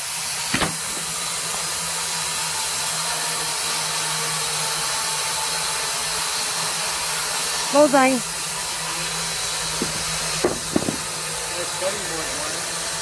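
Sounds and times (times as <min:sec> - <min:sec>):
band sawmill running: 0:00.0 - 0:13.0
sharp click: 0:00.5 - 0:01.2.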